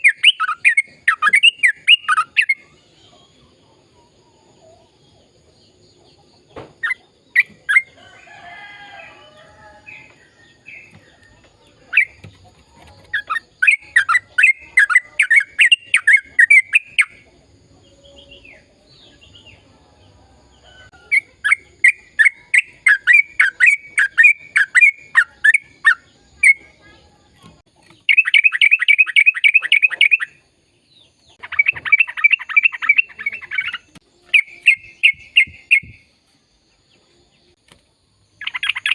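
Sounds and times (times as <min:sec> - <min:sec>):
bird rapid repeated chirping: 0:00.0 - 0:02.7, 0:06.8 - 0:08.0, 0:11.9 - 0:17.3, 0:21.1 - 0:26.7, 0:27.8 - 0:30.4, 0:31.0 - 0:36.1, 0:38.4 - 0:38.9.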